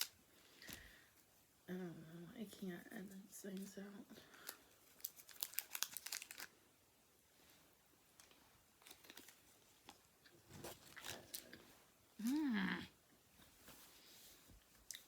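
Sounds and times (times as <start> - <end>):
candy wrapper crinkling: 0.0 - 0.8, 4.2 - 6.6, 8.2 - 10.0, 10.7 - 11.6.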